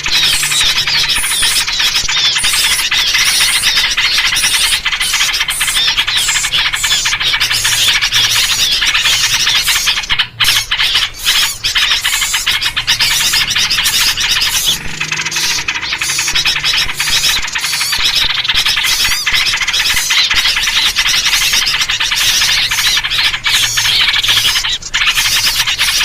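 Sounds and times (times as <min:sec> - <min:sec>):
many songbirds chattering: 0:00.0 - 0:26.0.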